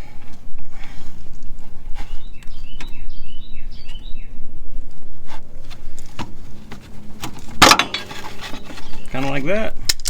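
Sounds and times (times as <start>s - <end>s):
songbird chirping: 1.9s - 5.0s, 6.5s - 9.7s.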